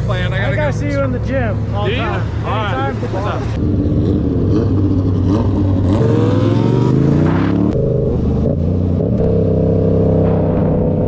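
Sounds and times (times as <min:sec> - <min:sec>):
motorcycle engine accelerating: 0:03.6 - 0:11.0.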